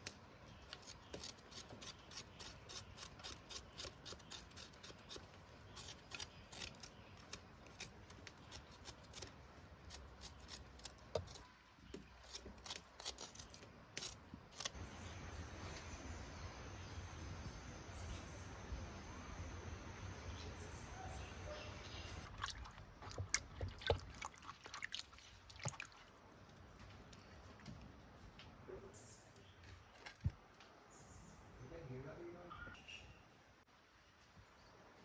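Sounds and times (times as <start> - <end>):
crisp cutting snips: 0.0 - 14.8
steady soft hiss: 14.6 - 22.2.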